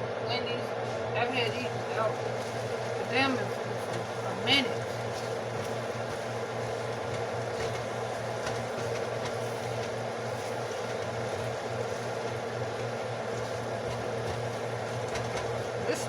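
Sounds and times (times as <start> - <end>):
steady mechanical hum: 0.0 - 16.0
food crackling in a pan: 1.4 - 16.0.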